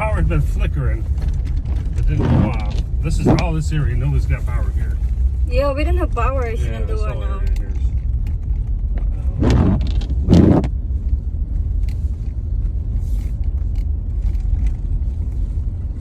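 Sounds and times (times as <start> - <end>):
car rumbling on snowy road: 0.0 - 16.0.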